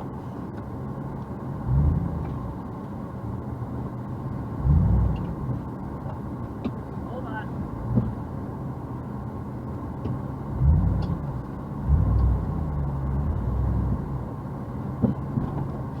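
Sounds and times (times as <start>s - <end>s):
truck engine revving: 1.6s - 2.5s, 10.5s - 14.3s.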